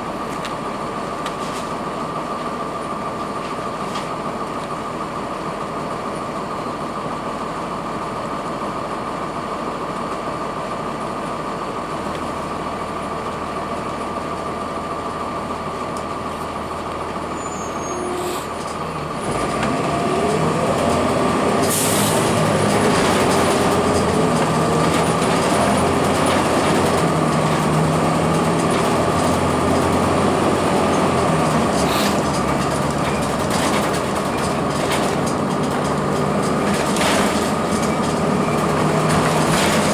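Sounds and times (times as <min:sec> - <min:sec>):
diesel bus engine running: 0:00.0 - 0:39.9
engine and transmission whine: 0:00.0 - 0:39.9.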